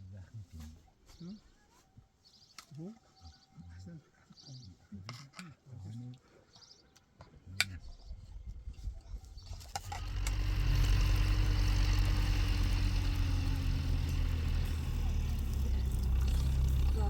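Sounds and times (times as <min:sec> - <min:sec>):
tractor engine droning: 0:09.6 - 0:17.0.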